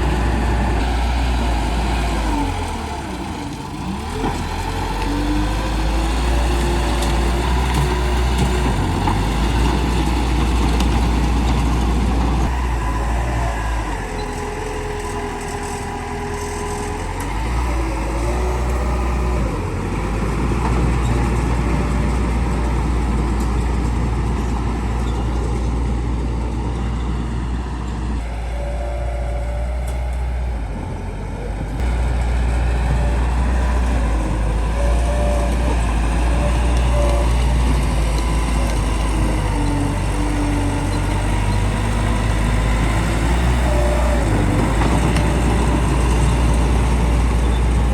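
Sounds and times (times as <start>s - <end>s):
bulldozer diesel engine: 0.0s - 47.9s.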